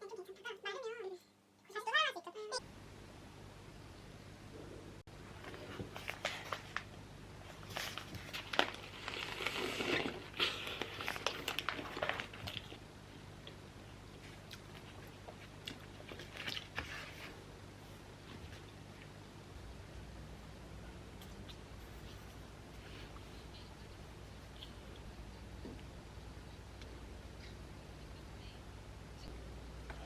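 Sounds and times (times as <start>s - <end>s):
steady low hum: 2.6s - 30.0s
crinkly rustling: 5.3s - 12.8s.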